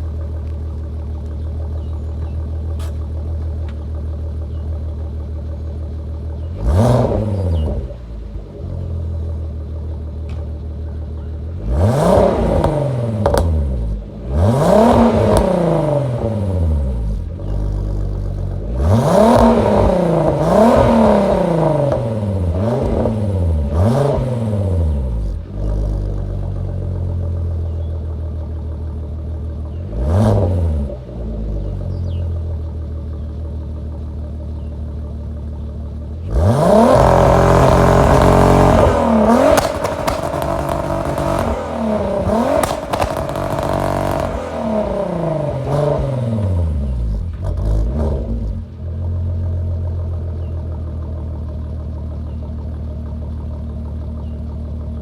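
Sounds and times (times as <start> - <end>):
exhaust cracks: 0.0 - 34.4, 35.4 - 55.0
car engine idling: 0.0 - 55.0
engine revving: 6.6 - 8.6, 11.6 - 27.8, 29.7 - 32.2, 36.2 - 49.2.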